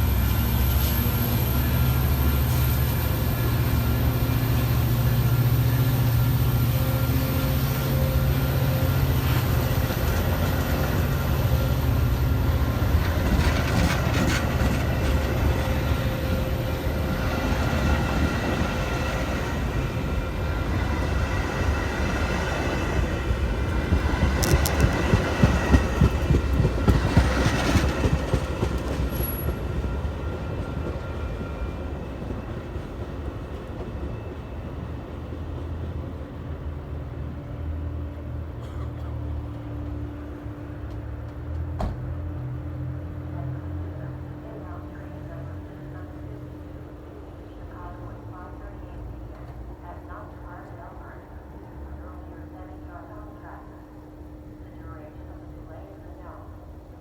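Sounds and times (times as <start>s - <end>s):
locomotive engine rumble: 0.0s - 57.0s
train wheels clacking: 12.6s - 16.5s, 20.7s - 34.4s.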